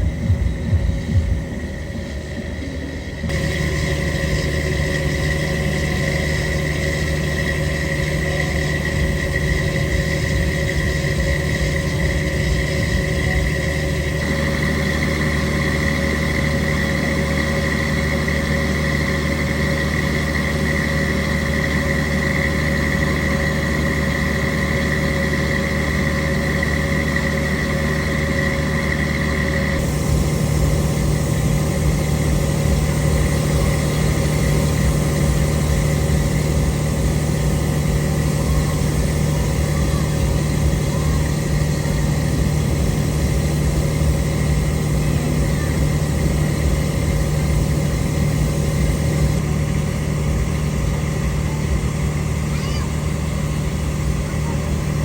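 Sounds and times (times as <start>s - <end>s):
engine-like drone: 0.0s - 55.0s
high whine: 0.0s - 55.0s.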